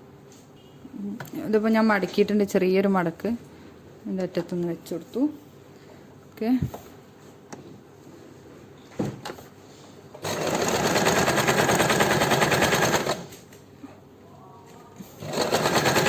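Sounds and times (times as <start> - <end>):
electric sewing machine stitching: 10.2 - 13.3, 15.2 - 16.0.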